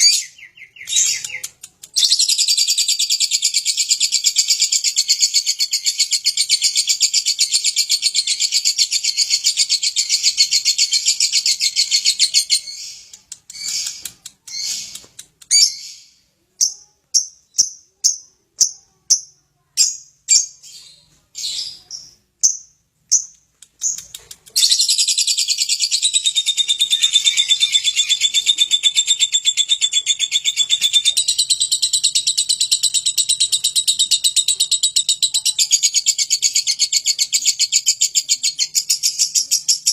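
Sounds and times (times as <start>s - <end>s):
lovebird chattering song: 0.0s - 39.9s
lovebird short chirps: 11.2s - 16.8s.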